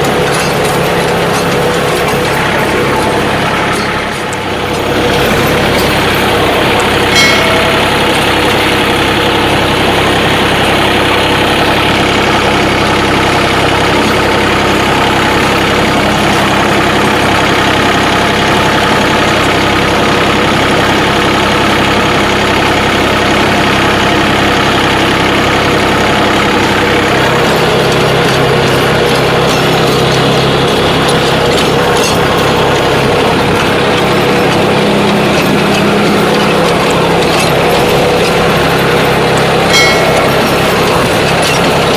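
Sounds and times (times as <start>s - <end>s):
tractor diesel engine running: 0.0s - 41.9s
low hum: 0.4s - 11.2s, 31.6s - 41.9s.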